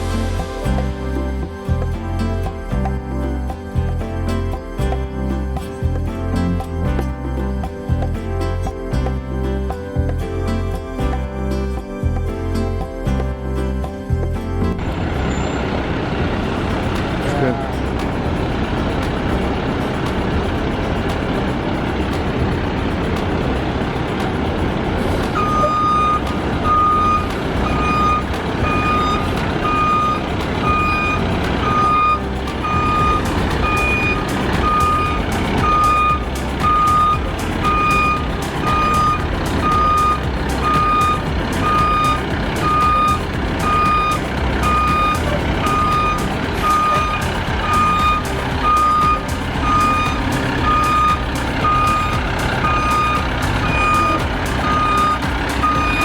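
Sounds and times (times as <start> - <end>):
truck engine rumble: 0.0 - 56.0
truck backup alarm beeping: 14.7 - 18.1, 23.0 - 56.0.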